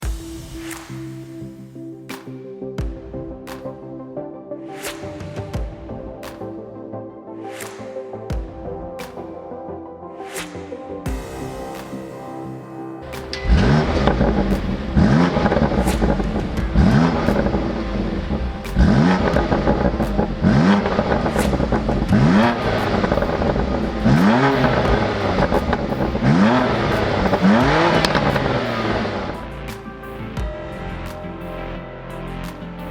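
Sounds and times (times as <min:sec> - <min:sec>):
car engine revving: 0:13.1 - 0:29.8.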